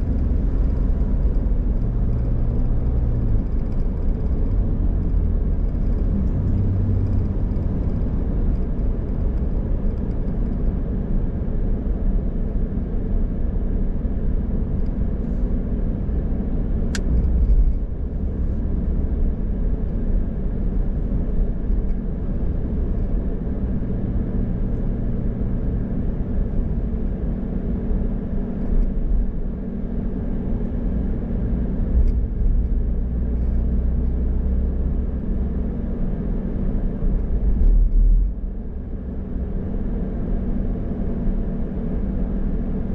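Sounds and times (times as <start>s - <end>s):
car engine and tyre rumble: 0.0s - 42.9s
sharp click: 17.0s - 17.3s.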